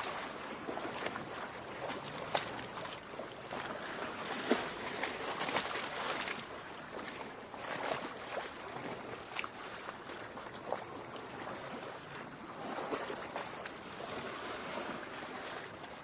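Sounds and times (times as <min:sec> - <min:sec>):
water lapping on rocky shore: 0:00.0 - 0:16.0.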